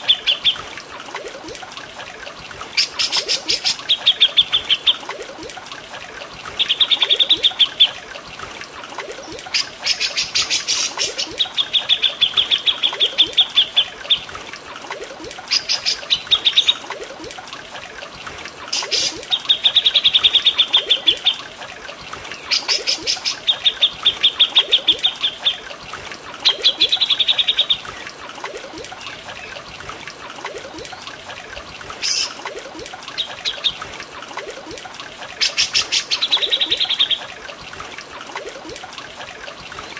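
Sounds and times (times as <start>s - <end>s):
birds singing trilled phrases: 0.0s - 0.7s, 2.8s - 5.0s, 9.2s - 14.3s, 15.5s - 16.8s, 22.4s - 25.7s, 26.4s - 28.0s, 31.8s - 32.5s, 33.1s - 33.9s, 35.3s - 37.3s
running water trickling: 0.0s - 39.9s.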